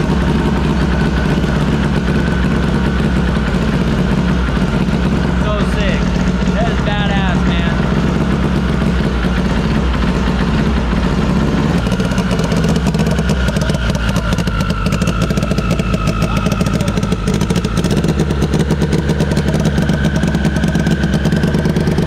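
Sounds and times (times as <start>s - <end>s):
race car engine idling rough: 0.0s - 22.0s.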